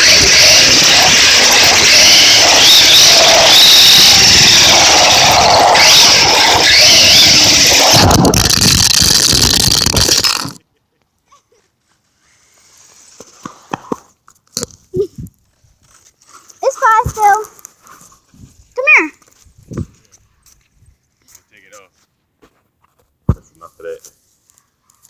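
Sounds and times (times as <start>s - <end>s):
wind on microphone: 0.0s - 10.1s, 19.5s - 20.0s
rc car motor whine and tyres: 0.0s - 10.6s.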